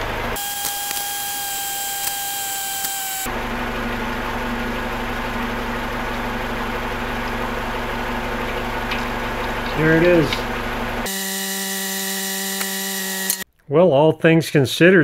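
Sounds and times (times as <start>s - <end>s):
car engine idling: 0.0s - 0.5s, 3.2s - 11.1s.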